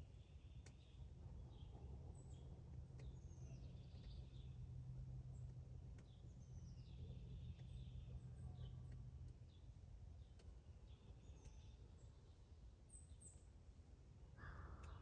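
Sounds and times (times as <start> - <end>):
faint sharp clicks: 0.5 - 0.9, 2.7 - 4.6, 5.4 - 6.2, 8.6 - 9.6, 10.2 - 10.6.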